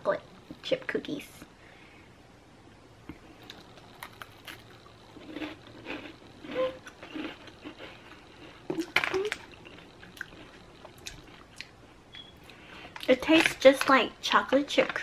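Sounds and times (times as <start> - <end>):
cookie crunching between teeth: 3.3 - 11.8.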